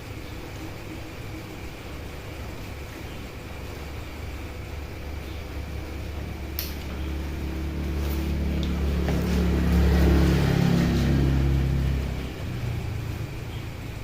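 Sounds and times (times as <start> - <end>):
low engine-like hum: 0.0 - 14.0
sharp click: 6.6 - 7.0.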